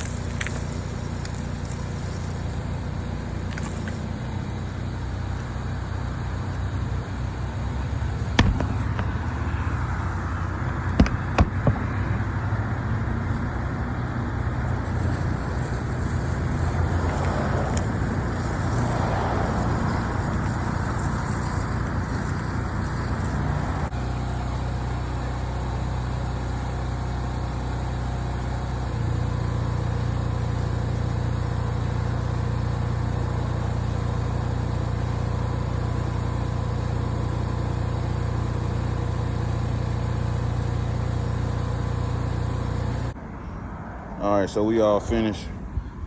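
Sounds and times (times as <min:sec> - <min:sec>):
engine droning: 0:00.0 - 0:05.7, 0:14.7 - 0:43.2.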